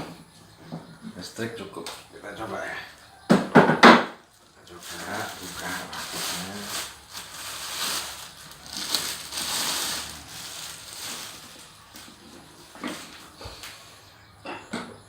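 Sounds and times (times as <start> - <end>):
packaging rustling: 4.4 - 13.8.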